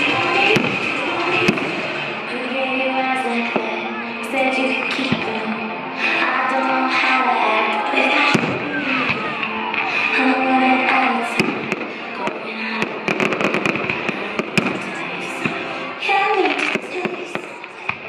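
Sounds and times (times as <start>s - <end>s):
fireworks bangs and crackling: 0.0s - 2.3s, 8.2s - 10.1s, 10.8s - 18.0s
music playing: 0.0s - 18.0s.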